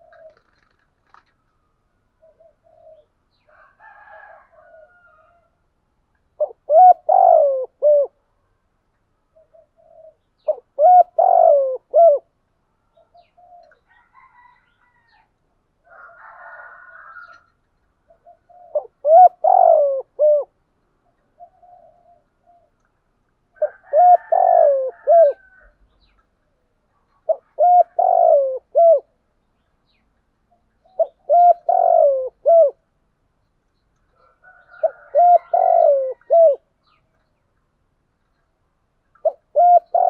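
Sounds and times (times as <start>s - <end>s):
dove cooing: 0.0s - 1.3s, 2.2s - 5.4s, 6.3s - 8.3s, 9.4s - 14.6s, 16.0s - 22.8s, 23.6s - 25.8s, 27.0s - 29.2s, 30.5s - 32.9s, 34.2s - 37.0s, 39.2s - 40.0s.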